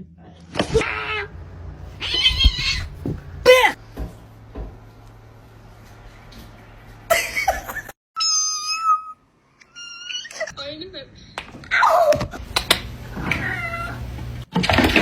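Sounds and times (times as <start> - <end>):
cat meowing: 2.0 - 3.8, 13.2 - 14.0.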